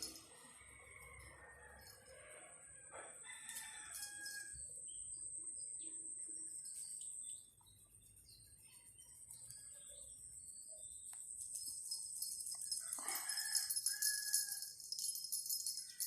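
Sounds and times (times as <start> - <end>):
rooster crowing: 0.0 - 4.6, 12.8 - 14.8.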